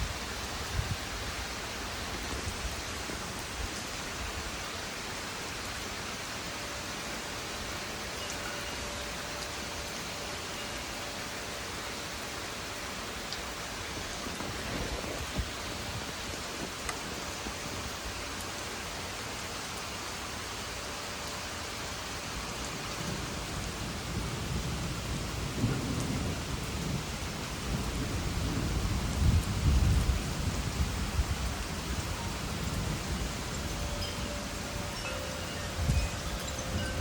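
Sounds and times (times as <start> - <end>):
steady rain: 0.0 - 37.0
low thunder roll: 24.1 - 33.3.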